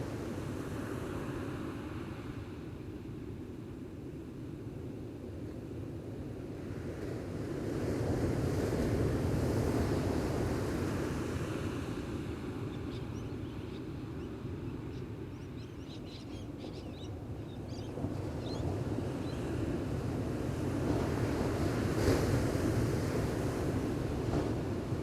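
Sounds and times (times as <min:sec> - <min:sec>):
ocean waves washing on beach: 0:05.7 - 0:13.4, 0:17.9 - 0:25.0.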